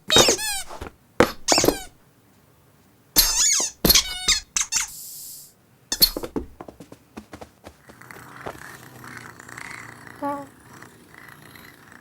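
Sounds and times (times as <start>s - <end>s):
cartoon cat squeaky squeal: 3.2s - 5.0s.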